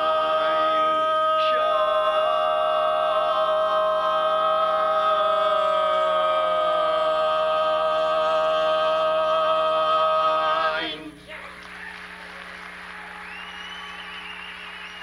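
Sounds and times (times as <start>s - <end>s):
vocal quartet holding a chord: 0.0s - 11.3s
audience applause: 11.5s - 15.0s.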